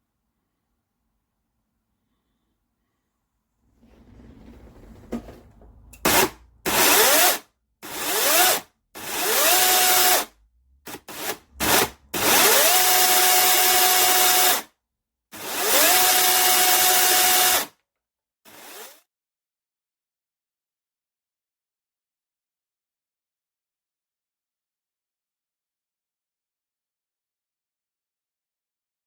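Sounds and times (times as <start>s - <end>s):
electric chainsaw motor whining: 6.7s - 10.3s, 10.9s - 14.6s, 15.4s - 17.7s, 18.5s - 19.0s.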